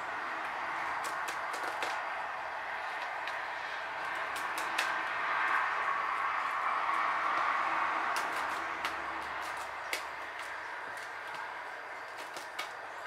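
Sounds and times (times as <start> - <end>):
bird claws and beak tapping on desk: 1.0 - 2.0.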